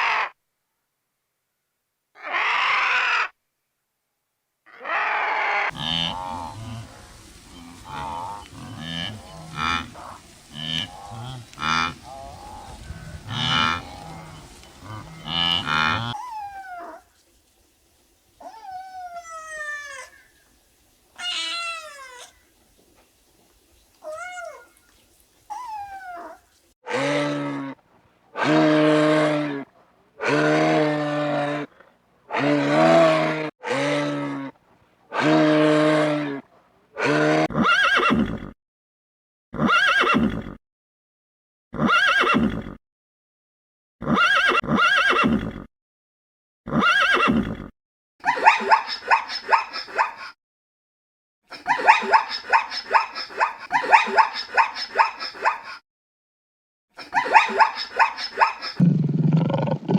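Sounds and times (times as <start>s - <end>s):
animal calls: 2.2s - 3.4s, 57.2s - 59.9s.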